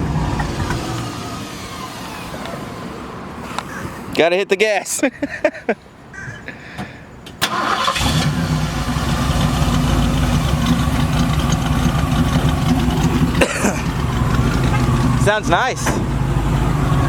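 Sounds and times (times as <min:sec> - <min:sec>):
engine cranking: 0:07.4 - 0:17.0
engine idling: 0:07.4 - 0:17.0.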